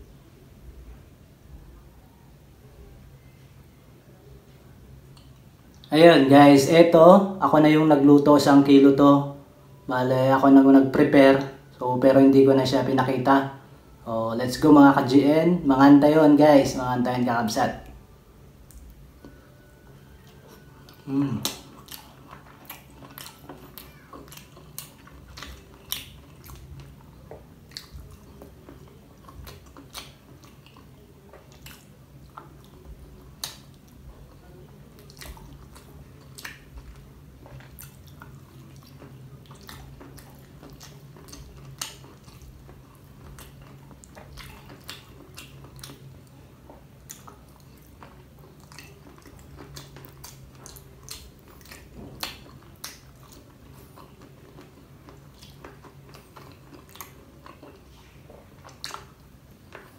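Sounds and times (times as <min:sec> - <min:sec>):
sharp chewing clicks: 0:20.9 - 0:59.9
wet mouth smacks: 0:21.4 - 0:22.1.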